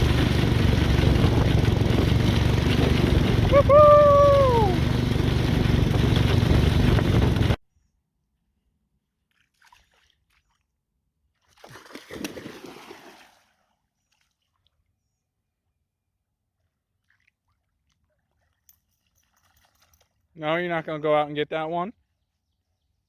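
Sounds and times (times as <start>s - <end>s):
go-kart engine running: 0.0s - 7.6s
wind noise: 0.0s - 7.6s
water splash: 11.5s - 13.6s.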